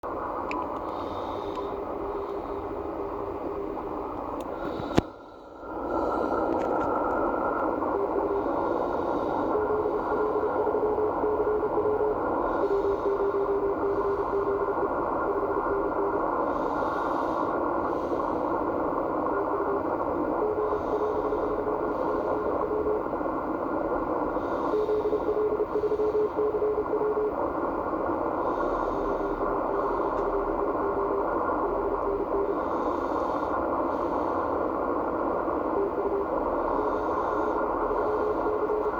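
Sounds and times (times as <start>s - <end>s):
radio band noise hiss: 0.0s - 38.9s
morse code tone: 7.6s - 18.1s, 19.1s - 38.9s.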